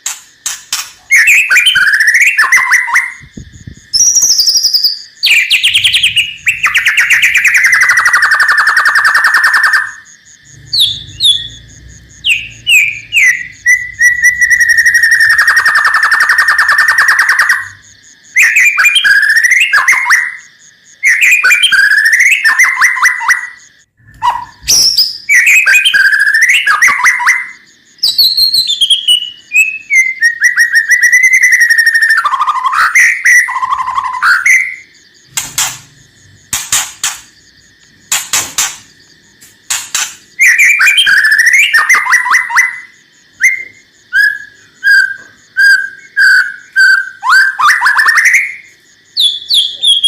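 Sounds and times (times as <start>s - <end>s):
bird rattling trills: 0.0s - 3.3s, 35.3s - 37.5s, 38.1s - 39.0s, 39.6s - 41.9s
songbird singing: 0.0s - 50.0s.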